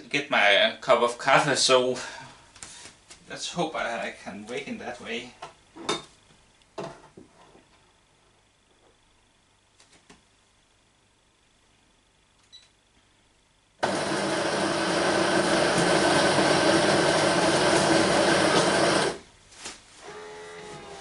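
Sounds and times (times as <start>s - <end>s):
electric coffee grinder running: 13.8s - 19.2s.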